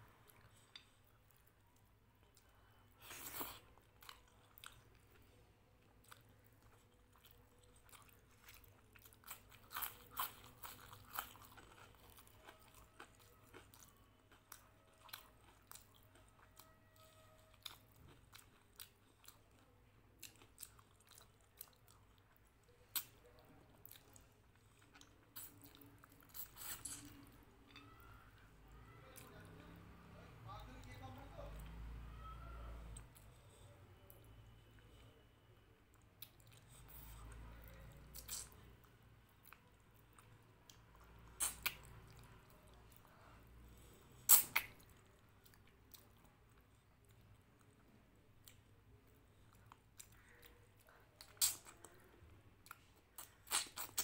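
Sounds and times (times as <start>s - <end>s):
chewing and crunching food: 0.0s - 32.0s, 32.8s - 54.0s
wet mouth clicks: 41.4s - 41.8s, 44.3s - 44.8s, 51.3s - 51.8s, 53.2s - 54.0s.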